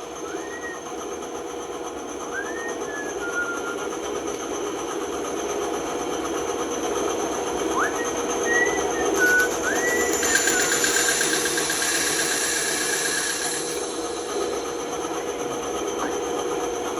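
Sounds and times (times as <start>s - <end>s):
band saw cutting wood: 9.2s - 15.5s.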